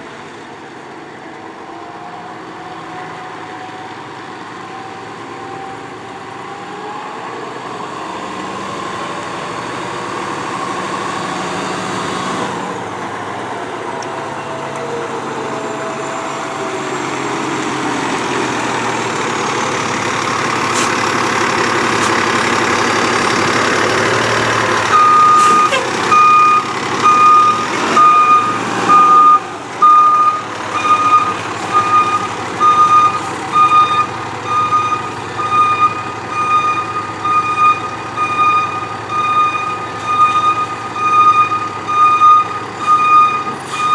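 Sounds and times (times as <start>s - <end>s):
fire engine running: 0.0s - 43.9s
backup alarm beeping: 24.8s - 43.9s.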